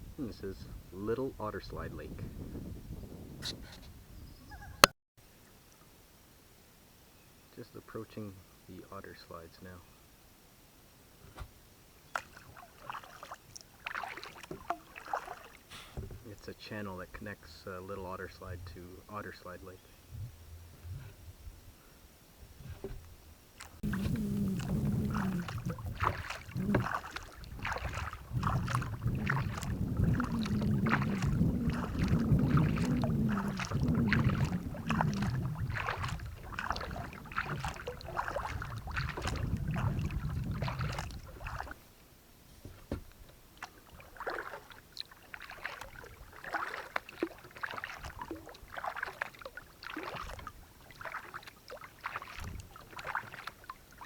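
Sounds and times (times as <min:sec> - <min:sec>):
paddle splashing in water: 0:11.2 - 0:19.6, 0:22.4 - 0:54.0
water dripping: 0:12.1 - 0:15.7, 0:23.6 - 0:41.8, 0:42.7 - 0:54.0.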